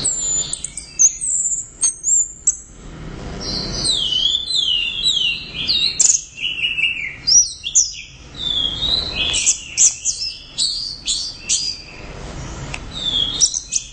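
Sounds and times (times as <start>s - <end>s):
thrush singing whistled phrases: 3.4s - 12.1s, 12.9s - 13.9s.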